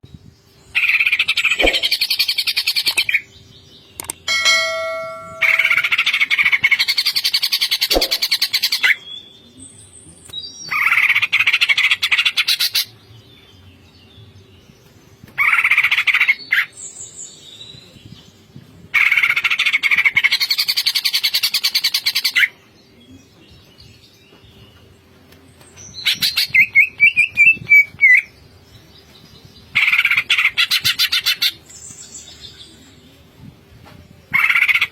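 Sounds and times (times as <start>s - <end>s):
bird singing rapid rattling notes: 1.1s - 3.1s, 3.9s - 8.7s.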